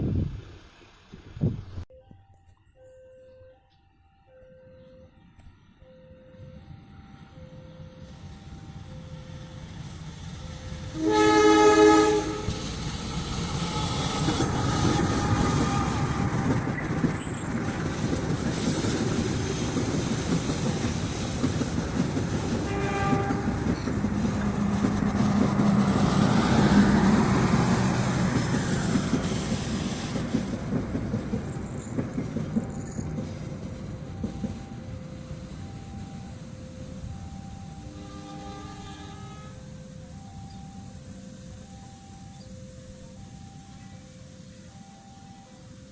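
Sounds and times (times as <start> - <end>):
locomotive engine: 4.3 - 45.9
train horn blast: 10.9 - 16.6, 22.6 - 27.6, 37.5 - 39.9
wheels clicking over rail joints: 12.4 - 37.4.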